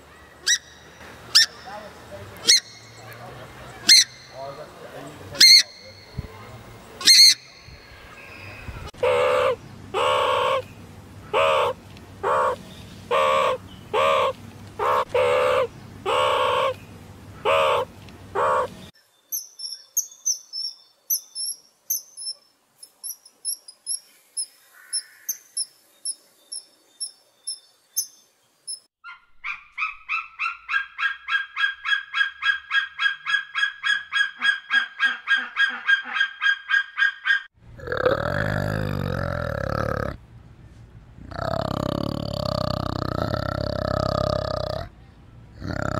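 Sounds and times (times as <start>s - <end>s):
shrill bird calls: 0.0s - 4.6s, 5.4s - 6.2s, 7.0s - 10.7s, 17.4s - 37.6s
birds honking calls: 0.0s - 19.0s
bird high chirps: 0.2s - 6.3s, 7.0s - 8.9s, 18.4s - 37.5s.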